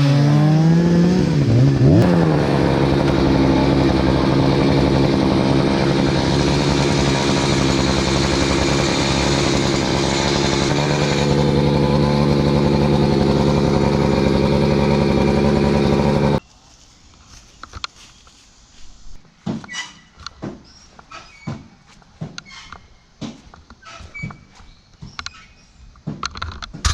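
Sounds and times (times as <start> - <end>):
chainsaw running at high revs: 0.0 - 16.4.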